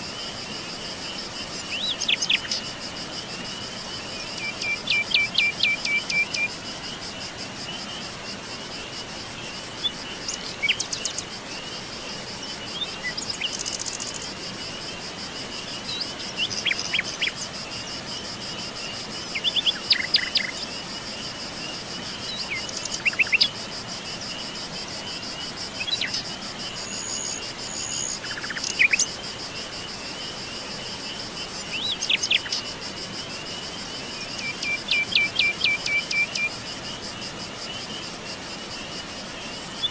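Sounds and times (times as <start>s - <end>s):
high-pitched insect trill: 0.0s - 39.9s.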